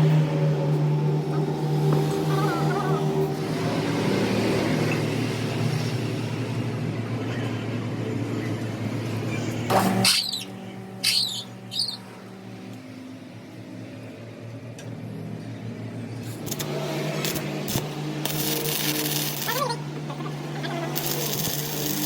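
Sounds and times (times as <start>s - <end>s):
high sweeping squeaks: 9.8s - 12.2s.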